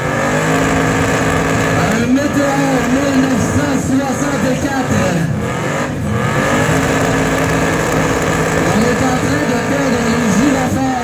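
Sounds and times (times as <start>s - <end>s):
car engine revving hard: 0.0s - 11.0s
voices: 1.7s - 5.5s, 8.6s - 11.0s.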